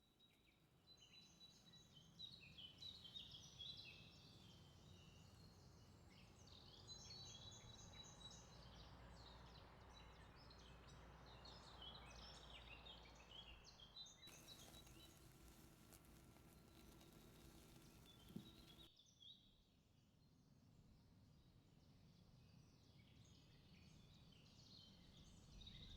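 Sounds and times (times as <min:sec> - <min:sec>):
small birds singing: 0:14.3 - 0:18.9.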